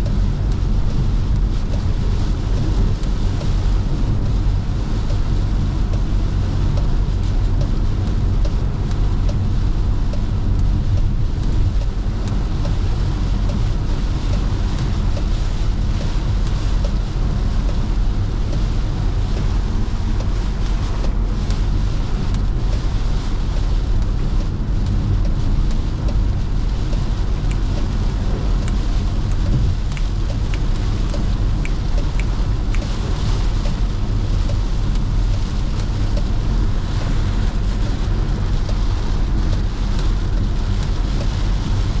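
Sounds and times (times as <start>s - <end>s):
car driving on highway: 0.0s - 42.0s
faint ticks: 28.6s - 33.0s.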